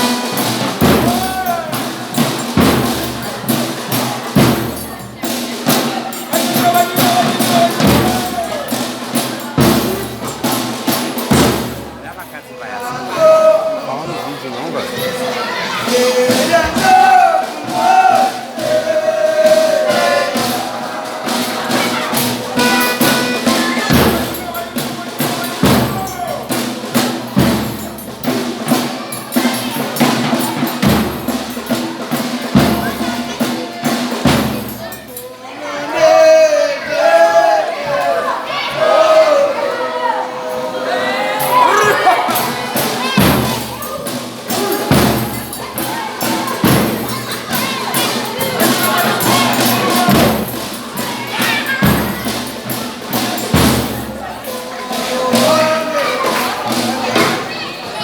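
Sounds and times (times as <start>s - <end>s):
heavy drum beat: 0.0s - 14.0s, 14.8s - 35.1s, 41.4s - 58.0s
folk band percussion: 0.0s - 58.0s.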